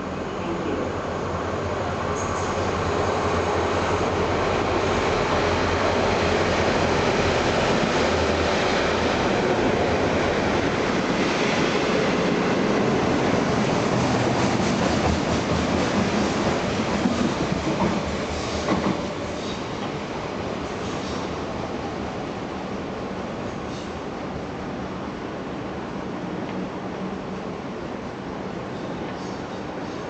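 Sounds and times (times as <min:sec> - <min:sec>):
freight train rumbling: 0:00.0 - 0:30.0
sharp train clacks: 0:13.4 - 0:20.0.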